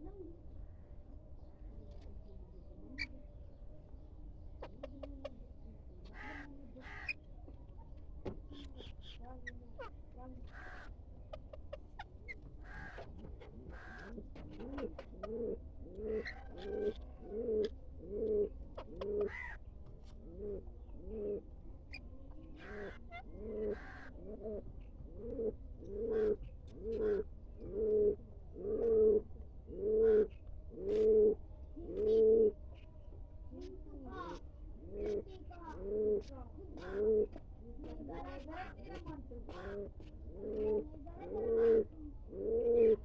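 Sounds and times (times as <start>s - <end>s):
pigeon cooing: 12.0s - 19.6s, 20.2s - 32.6s, 33.6s - 37.4s, 38.9s - 43.0s.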